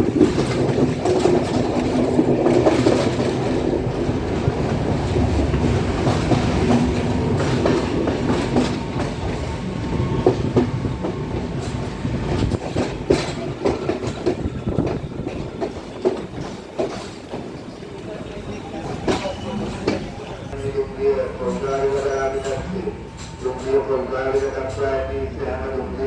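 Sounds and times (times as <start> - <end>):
wheels clacking over rail joints: 0.0 - 20.6
train rumble: 0.0 - 26.0.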